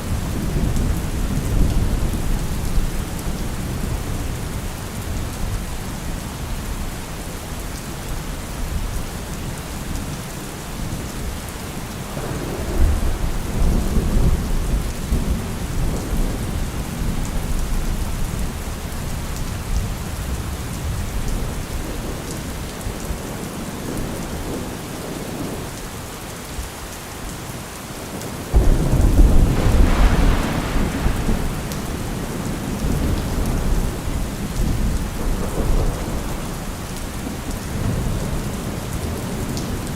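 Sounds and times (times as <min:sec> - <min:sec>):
steady rain falling: 0:00.0 - 0:39.9
thunder rumbling: 0:12.0 - 0:22.5, 0:28.5 - 0:39.9.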